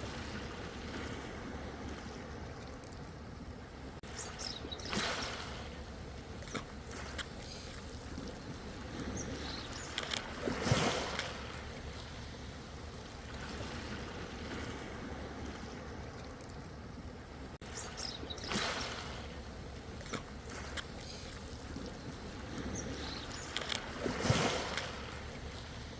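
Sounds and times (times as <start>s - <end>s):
small splashes: 4.0s - 12.2s, 17.6s - 25.9s.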